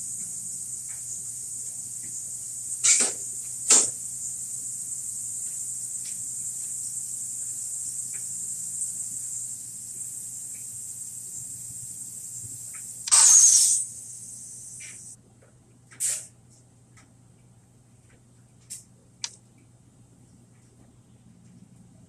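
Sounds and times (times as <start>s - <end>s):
high-pitched insect chorus: 0.0s - 15.2s
short loud noise bursts: 13.0s - 13.8s.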